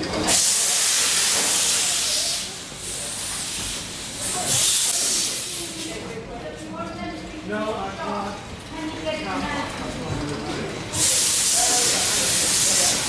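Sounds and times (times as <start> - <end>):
steam locomotive hissing steam: 0.2 - 5.9, 10.9 - 13.0.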